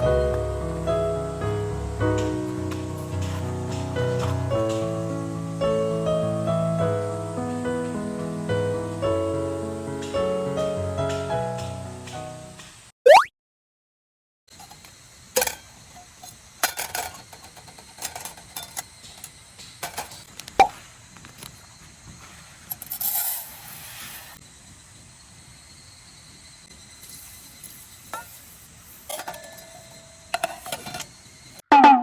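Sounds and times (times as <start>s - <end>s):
brief hiss: 23.2s - 24.4s.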